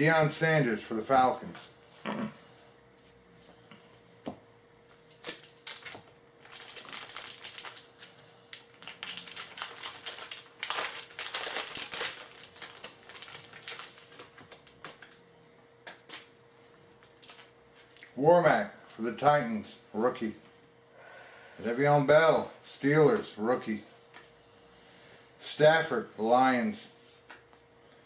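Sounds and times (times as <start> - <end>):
wrapper crinkling and rustling: 5.1 - 15.1.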